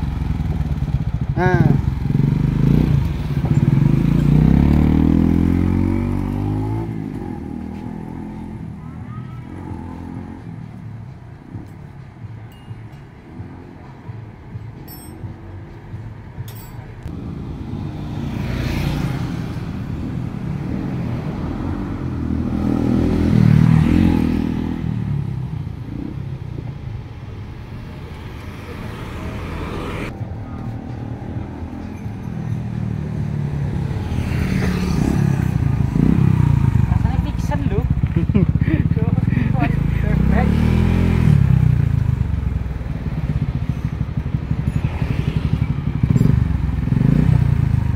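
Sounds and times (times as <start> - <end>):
motorcycle engine revving and idling: 0.0 - 12.3, 30.0 - 47.9
cars driving past: 2.0 - 47.9.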